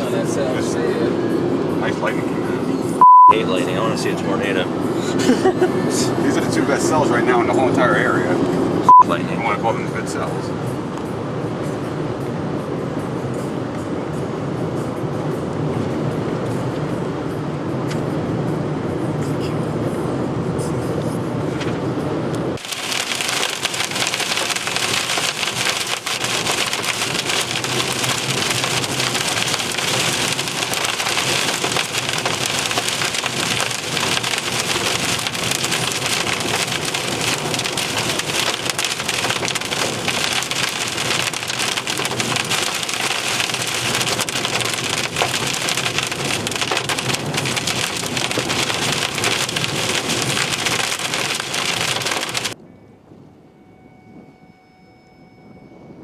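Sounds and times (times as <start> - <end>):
vehicle road noise: 0.0 - 52.7
heavy rain hissing: 22.6 - 52.6.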